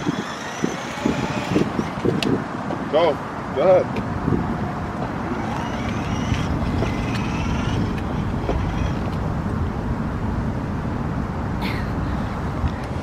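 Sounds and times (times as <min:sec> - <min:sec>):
low outdoor rumble: 0:03.8 - 0:13.0.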